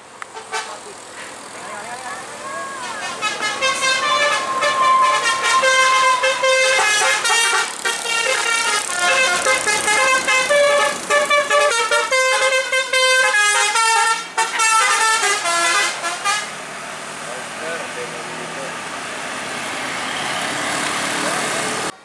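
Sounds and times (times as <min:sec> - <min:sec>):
bus musical horn melody: 0:02.1 - 0:16.7.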